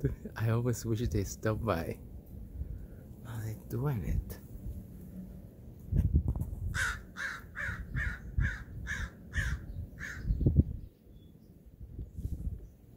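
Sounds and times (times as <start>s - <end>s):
bird giving harsh calls: 6.8s - 10.4s.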